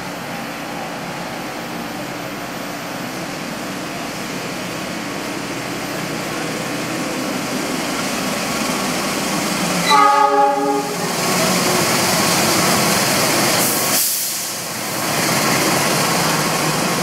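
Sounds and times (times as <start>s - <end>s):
diesel train rumbling: 0.0s - 17.0s.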